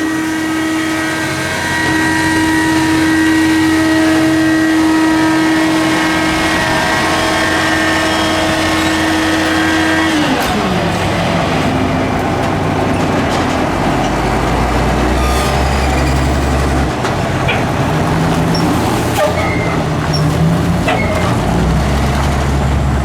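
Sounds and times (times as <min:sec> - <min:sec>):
diesel truck engine running: 0:00.0 - 0:23.0
hydraulic pump whine: 0:00.0 - 0:23.0
metal clanks: 0:05.8 - 0:22.5.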